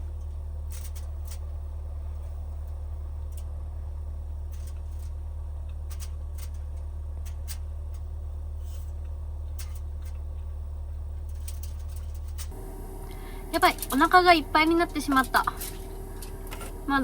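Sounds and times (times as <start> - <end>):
clicks and rustles of handling: 0.2 - 3.6, 4.4 - 10.6, 11.2 - 12.6.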